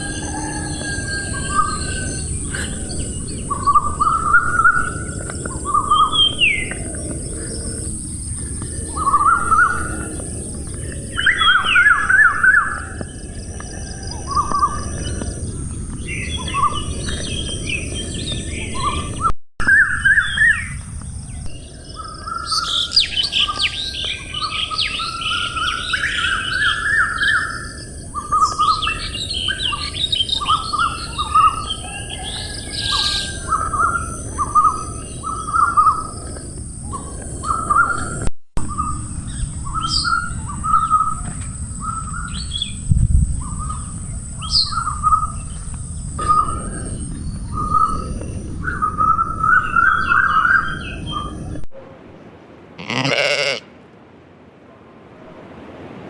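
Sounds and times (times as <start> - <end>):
steady high hum: 0.0 - 19.2
birds chirping: 0.0 - 51.6, 52.8 - 53.7.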